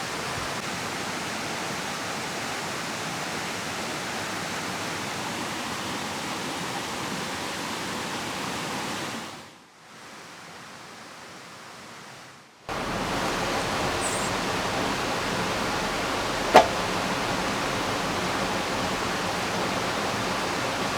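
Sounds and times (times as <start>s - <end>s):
rain: 0.0s - 3.2s, 12.7s - 20.9s
river rushing: 12.7s - 20.9s.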